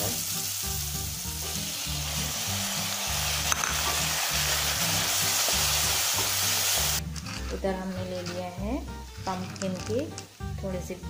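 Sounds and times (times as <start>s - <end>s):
vegetables sizzling in hot oil: 0.0s - 7.5s, 8.4s - 11.0s
wooden spatula stirring: 7.0s - 10.2s.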